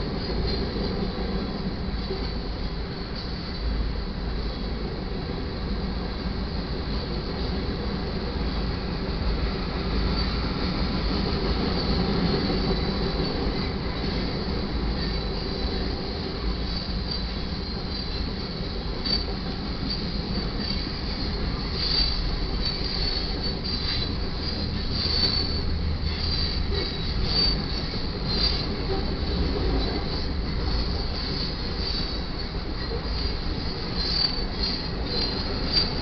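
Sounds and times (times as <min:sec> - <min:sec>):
train cars rumbling on rails: 0:00.0 - 0:36.0
high wheel squeal: 0:11.7 - 0:36.0.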